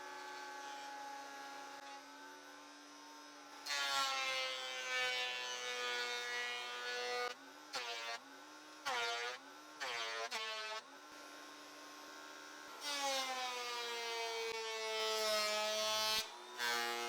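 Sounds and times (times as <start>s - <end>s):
thickness planer cutting boards: 3.6s - 8.2s, 8.9s - 10.8s, 12.8s - 17.0s.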